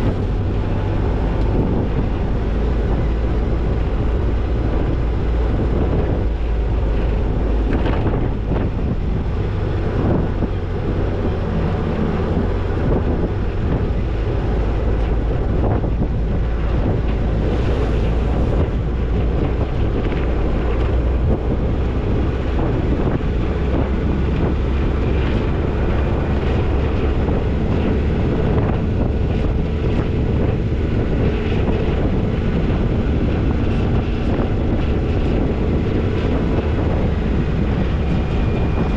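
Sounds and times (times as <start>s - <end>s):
car engine rumble driving: 0.0s - 38.9s
wind buffeting microphone: 0.0s - 38.9s.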